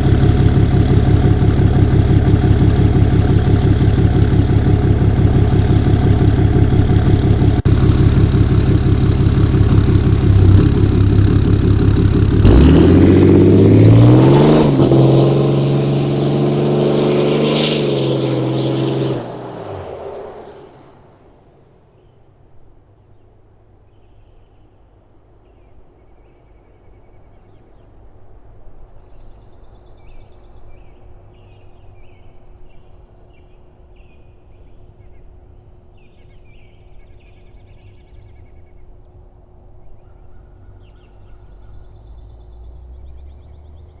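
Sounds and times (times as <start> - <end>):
steady low rumble: 0.0 - 14.0
songbirds chirping and trilling: 22.9 - 44.0.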